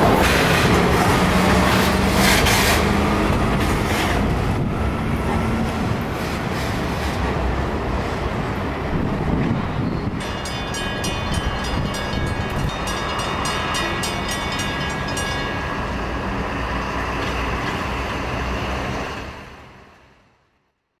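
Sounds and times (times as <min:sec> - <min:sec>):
freight train rumbling past: 0:00.0 - 0:20.5
crossing bell ringing: 0:09.8 - 0:17.3.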